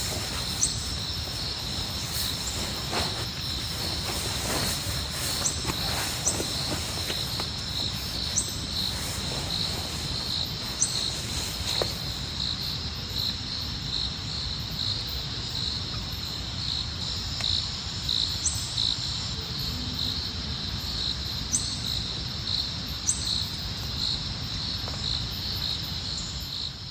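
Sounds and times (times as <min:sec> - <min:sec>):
steady rainfall: 0:00.0 - 0:11.5
crickets chirping: 0:00.0 - 0:26.9.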